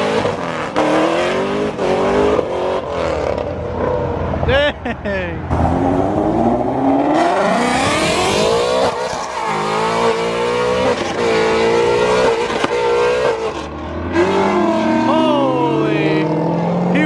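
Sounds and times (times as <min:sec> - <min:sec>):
car engine accelerating hard: 0:05.5 - 0:15.3.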